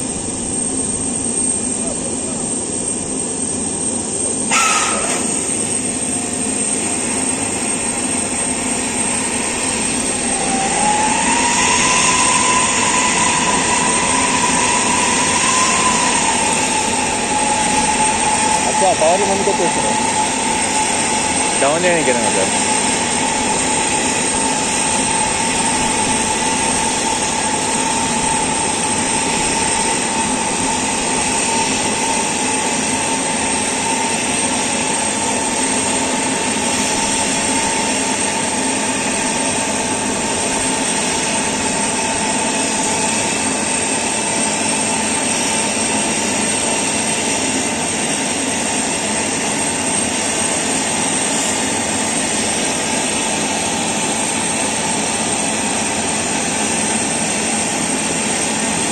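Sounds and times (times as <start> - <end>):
aircraft turbine roaring: 0.0 - 58.9.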